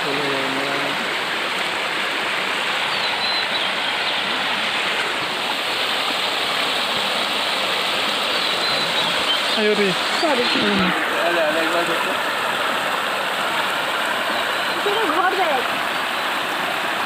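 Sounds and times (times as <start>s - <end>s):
river floodwater rushing: 0.0s - 17.0s.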